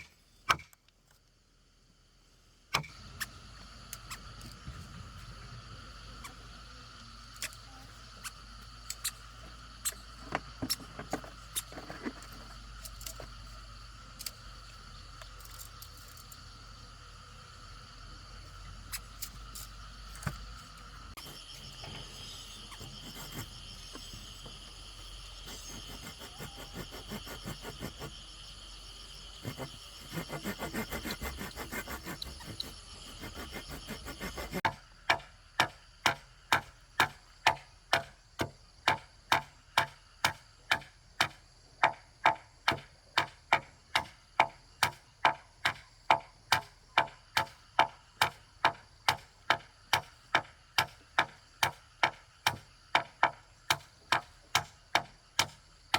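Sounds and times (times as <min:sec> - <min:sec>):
hand tool striking wood: 0:00.0 - 0:00.7, 0:29.4 - 0:55.6
insects trilling: 0:01.4 - 0:55.9.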